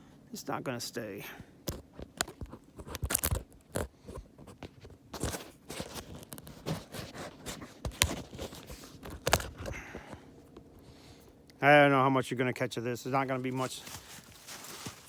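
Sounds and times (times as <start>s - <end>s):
crunches scrapes and knocks: 1.7s - 10.2s.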